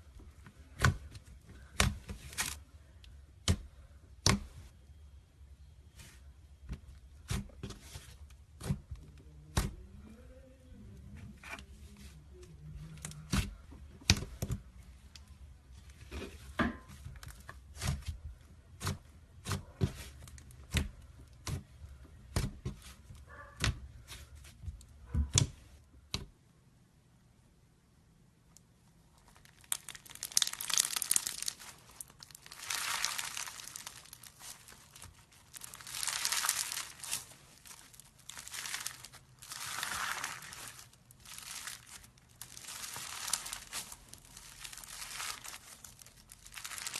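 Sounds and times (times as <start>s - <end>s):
slime crackling and crinkling: 0.0s - 4.5s, 29.0s - 46.9s.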